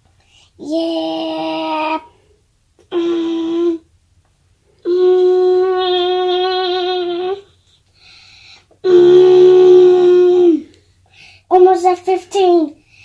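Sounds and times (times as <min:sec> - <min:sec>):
child humming: 0:02.8 - 0:03.9, 0:04.8 - 0:07.6, 0:08.8 - 0:10.7.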